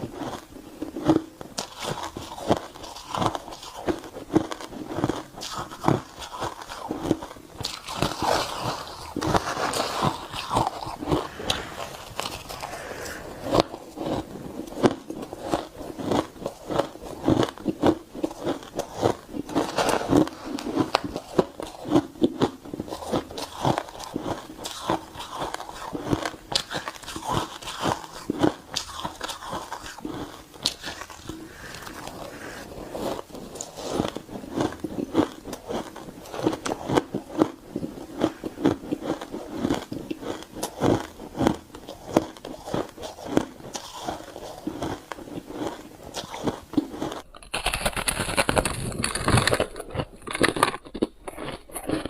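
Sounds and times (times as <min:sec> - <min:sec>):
ice crunching being chewed: 0:00.0 - 0:52.0.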